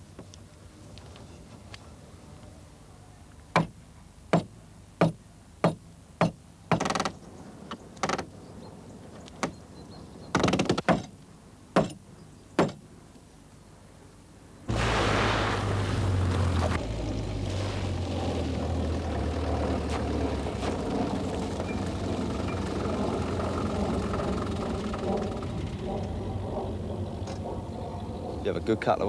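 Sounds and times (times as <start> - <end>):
hammer blows on wood: 11.8 - 12.0.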